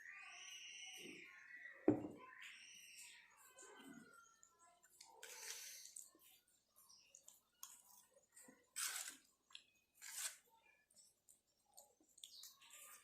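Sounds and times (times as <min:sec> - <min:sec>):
chewing and crunching food: 0:03.5 - 0:13.0.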